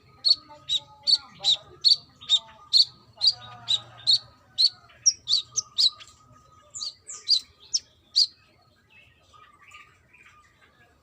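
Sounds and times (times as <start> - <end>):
sunbird sharp high chirps: 0.1 - 8.4.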